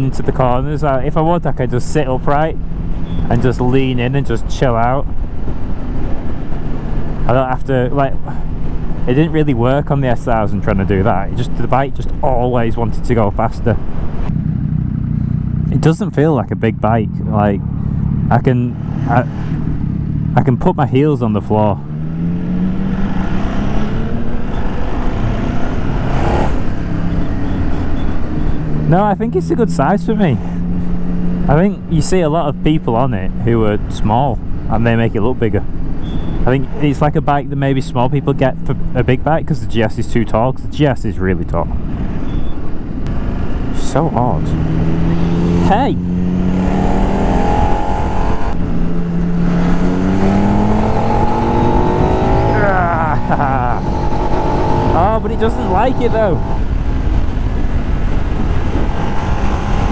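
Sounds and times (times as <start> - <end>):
motorcycle engine running: 5.0 - 22.0, 42.3 - 59.9
wind rush: 44.6 - 59.9
wind rush over microphone: 53.3 - 59.9.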